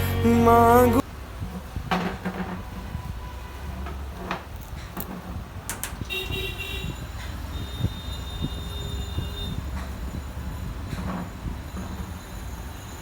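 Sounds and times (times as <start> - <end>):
low traffic rumble: 0.0 - 13.0
vehicle horn: 6.1 - 9.7.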